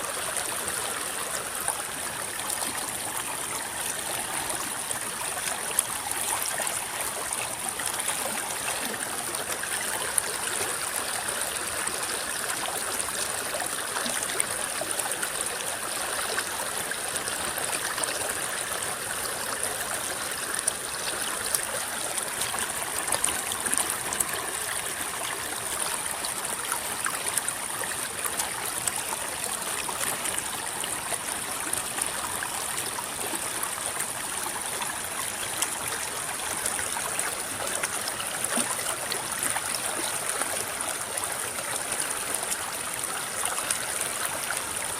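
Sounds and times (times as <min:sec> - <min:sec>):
river water babbling: 0:00.0 - 0:44.9
small water splashes: 0:34.9 - 0:44.9.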